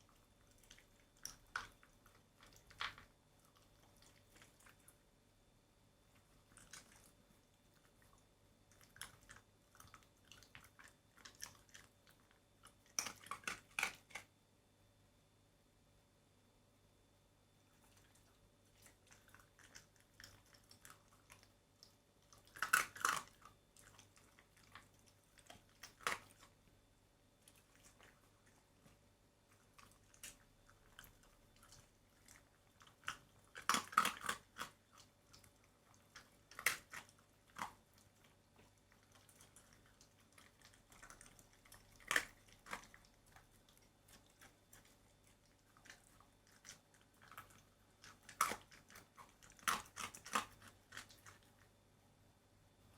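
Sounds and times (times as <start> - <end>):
dog chewing: 0.0 - 5.1, 6.1 - 14.3, 17.7 - 26.8, 27.4 - 51.8
dog biting: 22.4 - 26.5, 29.8 - 35.4, 39.0 - 51.5.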